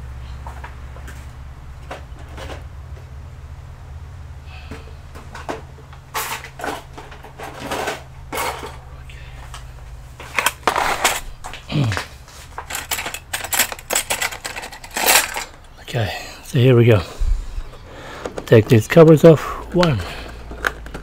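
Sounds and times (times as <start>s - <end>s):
steady low hum: 0.0s - 21.0s
parts and tools clattering: 1.8s - 2.7s, 4.7s - 15.8s, 17.7s - 21.0s.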